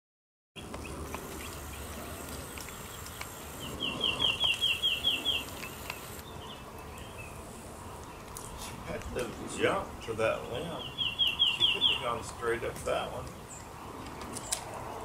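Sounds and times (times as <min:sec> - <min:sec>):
bird chirping: 0:00.6 - 0:08.6, 0:10.3 - 0:12.4
faint insect hum: 0:00.9 - 0:06.7.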